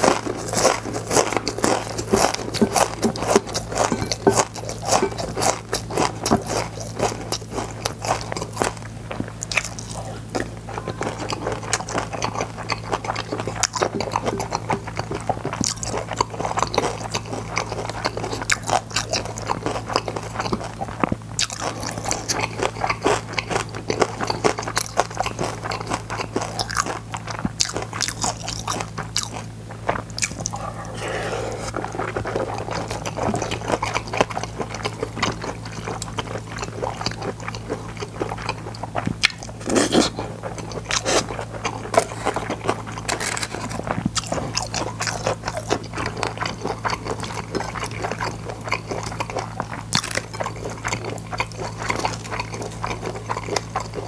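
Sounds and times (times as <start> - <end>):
crunching and chewing seaweed chips: 0.0 - 54.0
steady low hum: 0.0 - 54.0.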